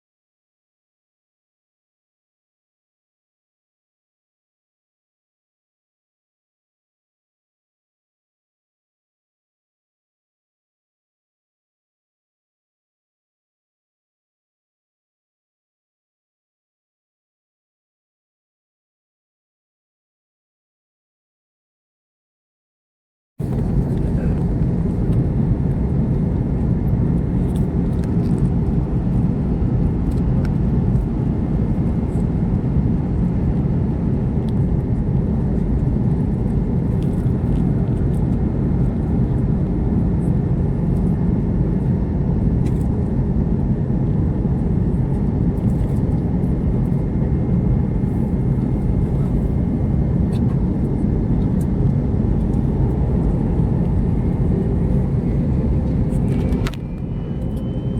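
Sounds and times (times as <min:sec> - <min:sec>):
airliner cabin engine rumble: 0:23.4 - 0:57.9
faint high steady whine: 0:46.2 - 0:57.9.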